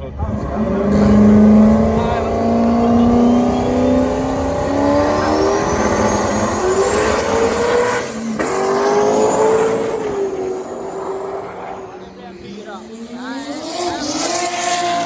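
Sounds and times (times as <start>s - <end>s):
racing car engine at full throttle: 0.0s - 15.0s.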